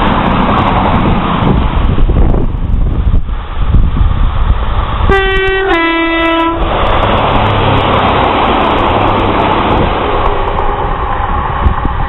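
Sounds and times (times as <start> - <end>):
train engine and wheels rumbling: 0.0 - 12.0
two-tone train horn: 5.1 - 6.6.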